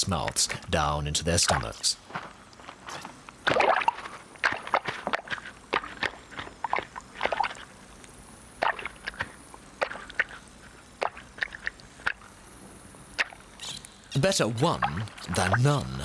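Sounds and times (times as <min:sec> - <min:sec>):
faint underwater background: 0:01.5 - 0:16.0
wet squelches and clicks: 0:02.1 - 0:12.4, 0:13.2 - 0:14.0, 0:14.8 - 0:15.6.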